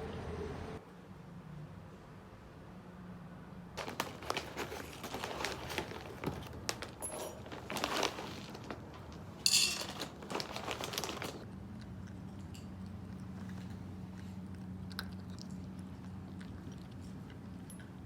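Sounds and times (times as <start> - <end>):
crinkling handling noises: 3.8 - 11.5.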